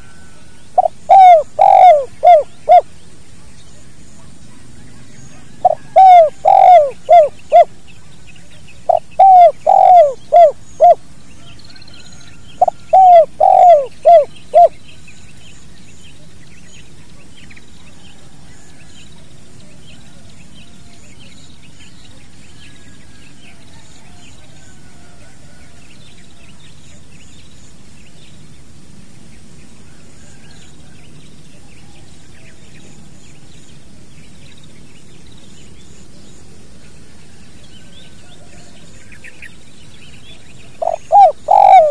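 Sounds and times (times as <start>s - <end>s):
dove cooing: 0.0s - 2.9s, 4.2s - 7.8s, 8.9s - 11.8s, 12.6s - 14.8s, 40.6s - 41.9s
small birds chirping: 0.0s - 24.9s, 25.5s - 41.9s.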